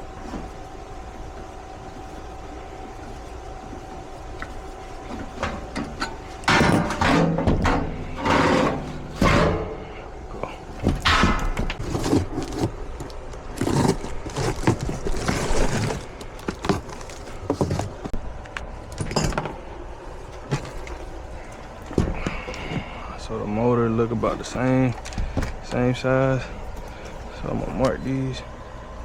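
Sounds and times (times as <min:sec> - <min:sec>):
metal parts clanking: 0:06.0 - 0:09.8.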